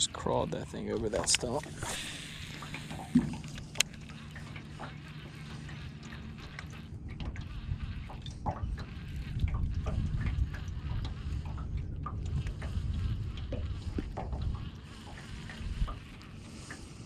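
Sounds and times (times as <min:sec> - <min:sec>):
water lapping against boat: 0:00.0 - 0:17.0
wind buffeting microphone: 0:07.3 - 0:16.5.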